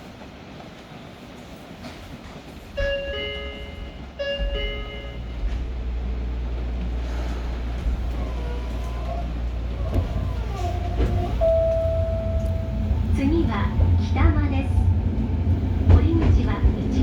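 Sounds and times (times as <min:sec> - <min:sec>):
train rumble: 0:00.0 - 0:17.0
two-note electronic door chime: 0:11.4 - 0:12.8.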